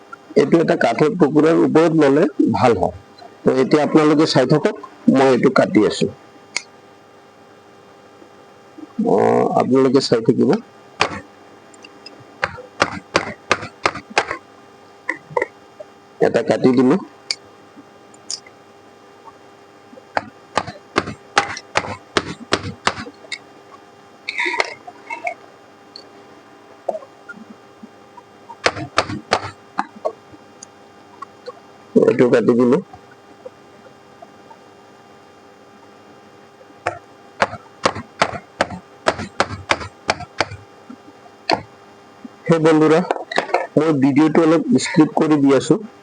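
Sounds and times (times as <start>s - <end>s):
hammer striking chisel: 11.0s - 11.2s, 37.4s - 40.6s.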